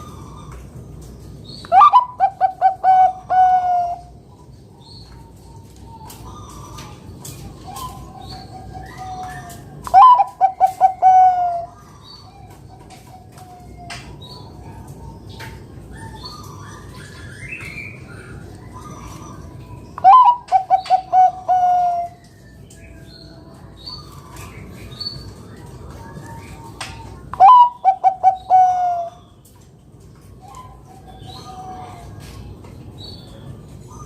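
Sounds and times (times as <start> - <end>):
faint birds chirping: 0.0 - 34.0
dove cooing: 1.7 - 4.2, 5.6 - 22.3, 25.6 - 29.3, 30.3 - 32.4.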